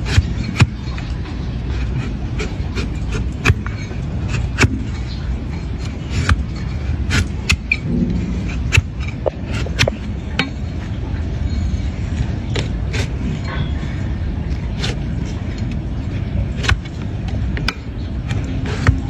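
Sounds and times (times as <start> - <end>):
tool clicking on hoof: 1.7 - 5.0
low rumble: 7.7 - 12.5.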